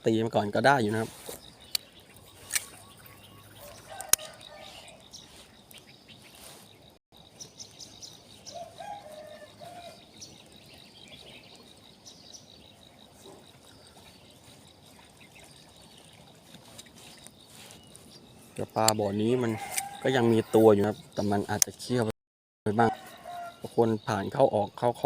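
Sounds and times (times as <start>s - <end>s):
birds chirping and calling: 0.0s - 22.1s, 22.7s - 25.0s
sharp click: 2.5s - 2.8s.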